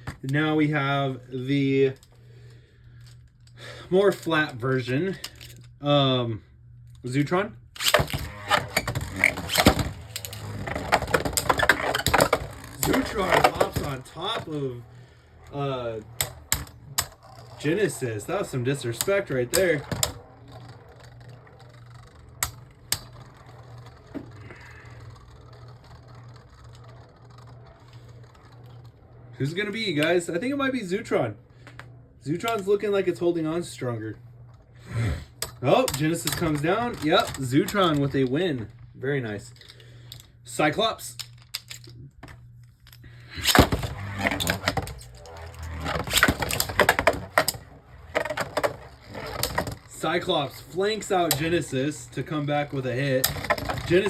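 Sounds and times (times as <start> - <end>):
spinning tops clattering: 7.8 - 30.4
spinning tops humming: 7.8 - 41.8, 42.4 - 54.0.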